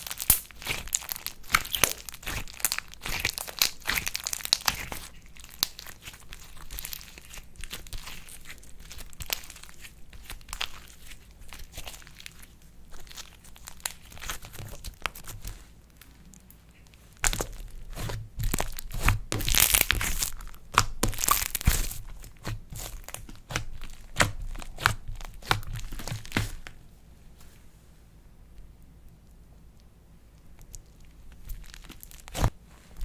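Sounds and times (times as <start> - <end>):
slime crackling and popping: 0.0 - 26.8, 30.4 - 32.6.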